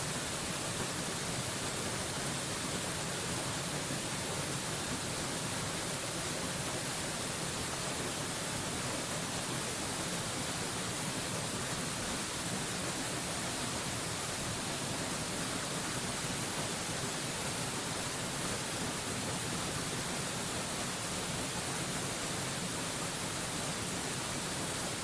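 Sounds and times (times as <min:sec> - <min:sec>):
waterfall rushing: 0:00.1 - 0:25.0.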